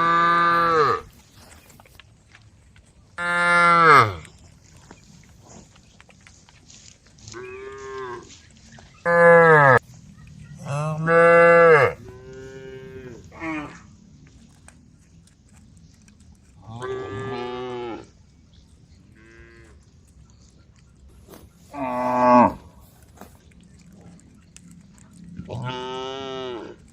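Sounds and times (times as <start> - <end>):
cows mooing: 0.0 - 1.1, 3.2 - 4.2, 9.0 - 9.8, 10.6 - 13.9, 16.6 - 18.1, 19.2 - 19.7, 21.7 - 22.8, 25.4 - 26.9.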